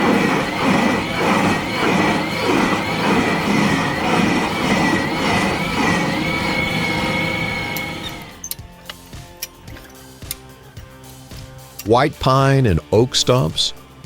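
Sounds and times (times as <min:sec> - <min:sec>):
stump crusher roaring with whine: 0:00.0 - 0:08.4.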